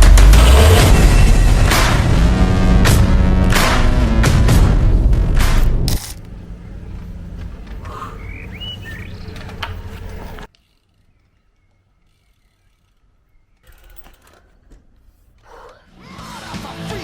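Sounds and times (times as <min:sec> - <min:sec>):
bike tyre and wind rumble: 0:00.0 - 0:15.3.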